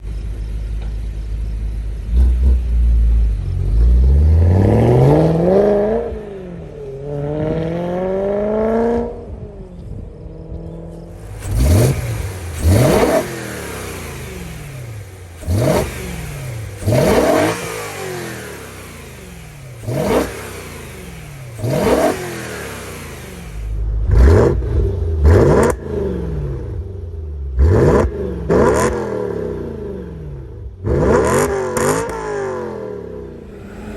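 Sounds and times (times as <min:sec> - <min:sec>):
car engine idling and revving: 0:00.0 - 0:33.9
sharp engine revs: 0:11.1 - 0:26.9, 0:27.5 - 0:33.9.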